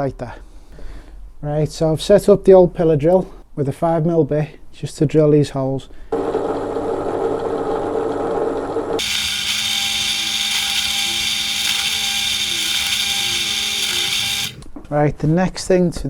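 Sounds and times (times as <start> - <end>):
steady motor hum: 6.2 - 14.6
pillar drill drilling into wood: 9.0 - 14.7.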